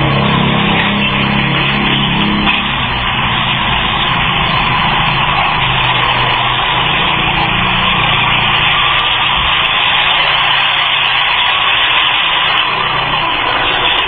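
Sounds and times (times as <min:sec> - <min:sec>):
low vehicle engine note: 0:00.0 - 0:10.8
road and wind noise: 0:00.0 - 0:14.0.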